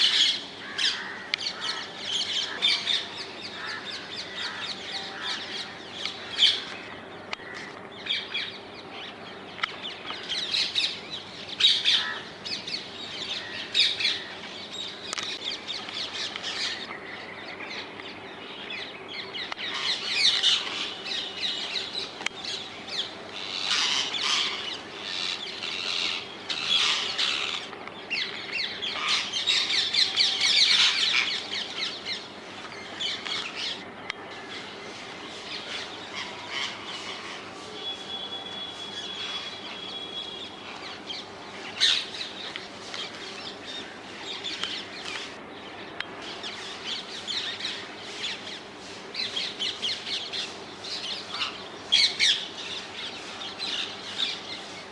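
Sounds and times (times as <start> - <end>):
parakeets squawking: 22.9 - 27.7, 28.8 - 32.2, 35.6 - 37.5, 39.0 - 42.4, 49.8 - 52.8.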